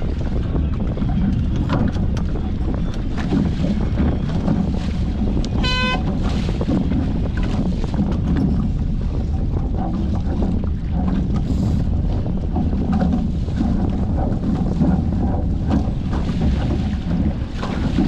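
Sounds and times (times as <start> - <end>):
water rushing past hulls: 0.0 - 18.0
wind buffeting microphone: 0.0 - 18.0
short high toot: 5.6 - 6.1.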